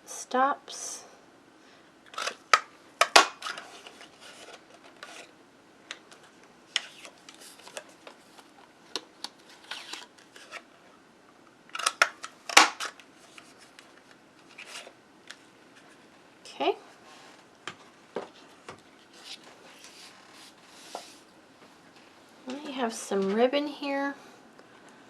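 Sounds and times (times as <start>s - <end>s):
paper and card rustling: 2.1s - 5.3s, 6.1s - 10.7s, 11.8s - 15.0s, 18.3s - 21.3s.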